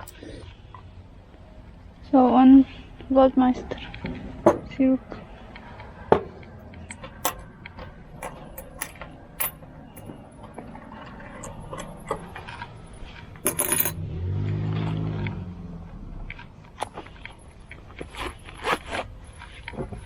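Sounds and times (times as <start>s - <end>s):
coins clinking: 7.2s - 7.5s, 8.1s - 10.2s, 13.3s - 14.0s.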